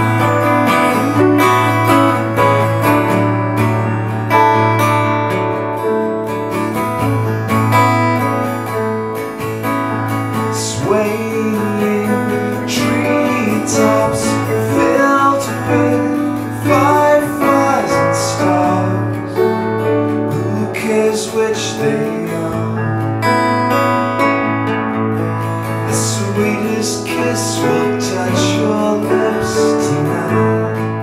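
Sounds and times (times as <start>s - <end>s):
acoustic guitar strumming: 0.0s - 31.0s
piano: 0.0s - 31.0s.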